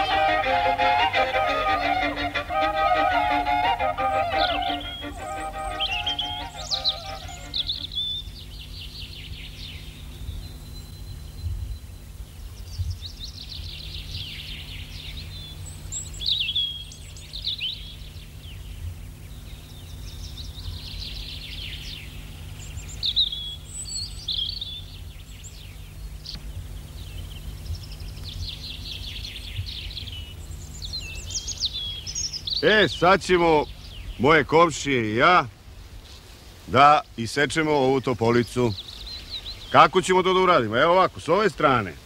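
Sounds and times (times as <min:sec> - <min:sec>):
bird trills: 0:00.0 - 0:08.4.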